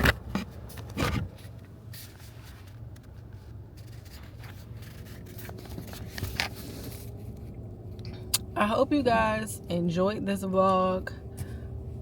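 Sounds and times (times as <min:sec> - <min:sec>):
handling noise on microphone: 0:00.0 - 0:07.4.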